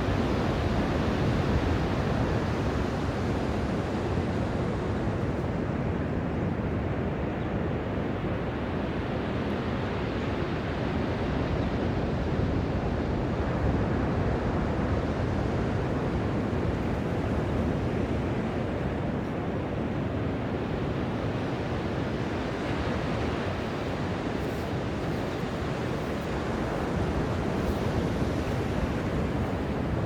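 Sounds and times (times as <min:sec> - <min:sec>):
wind noise on microphone: 0:10.6 - 0:30.0
ocean surf washing: 0:14.2 - 0:30.0.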